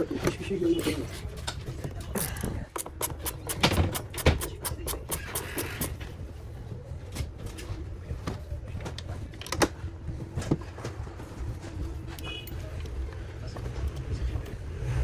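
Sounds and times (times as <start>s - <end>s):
clicks and knocks from tools: 0.0s - 6.1s.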